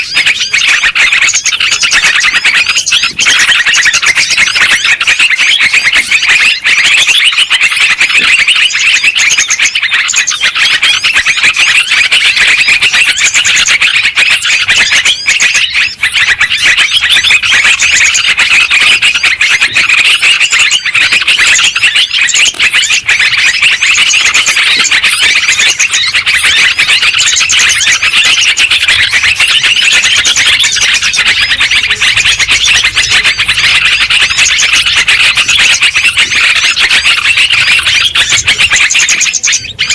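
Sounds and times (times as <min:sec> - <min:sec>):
bulbuls chirping and chattering: 0:00.0 - 0:39.9.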